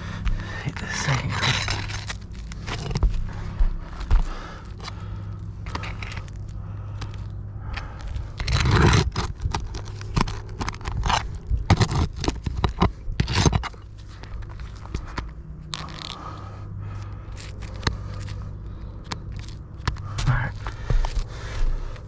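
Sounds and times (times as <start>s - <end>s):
low hum: 0.0s - 22.0s
flat bar scraping shingles: 8.4s - 15.0s.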